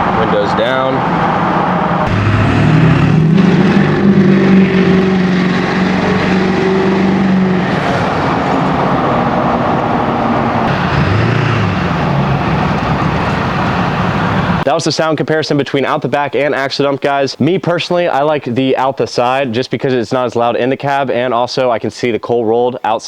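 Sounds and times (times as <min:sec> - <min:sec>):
diesel truck engine accelerating: 0:00.0 - 0:14.6
wind and road noise: 0:00.0 - 0:14.7.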